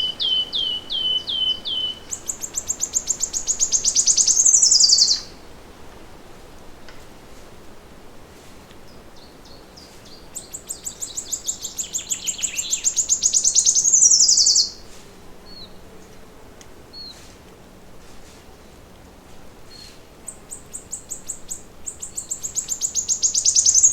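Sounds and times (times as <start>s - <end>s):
bird chirps: 0.0s - 5.3s, 9.2s - 14.8s, 19.7s - 23.9s
songbird singing: 0.0s - 5.4s, 8.8s - 16.1s, 16.9s - 17.2s, 19.6s - 23.9s.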